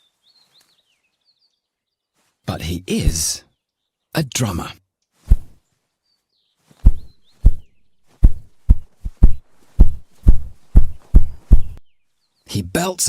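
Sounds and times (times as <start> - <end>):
grouse wing drumming thumps: 5.3 - 5.6, 6.8 - 11.8.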